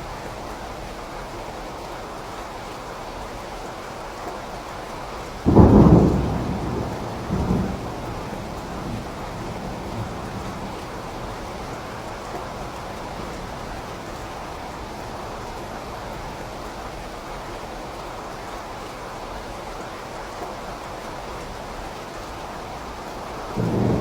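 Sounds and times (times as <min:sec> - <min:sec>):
steady rain: 0:00.0 - 0:24.0
thunderclap rumbling: 0:05.4 - 0:15.4, 0:23.5 - 0:24.0.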